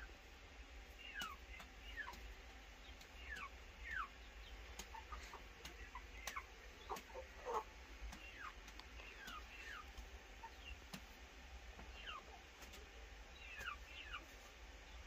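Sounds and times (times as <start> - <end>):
bird calling: 1.0 - 10.8, 11.8 - 12.5, 13.3 - 14.3
faint clicks: 8.0 - 10.1.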